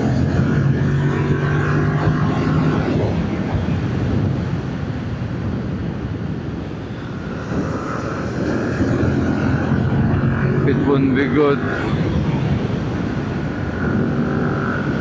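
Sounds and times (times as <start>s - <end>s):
wind rush: 0.0s - 15.0s.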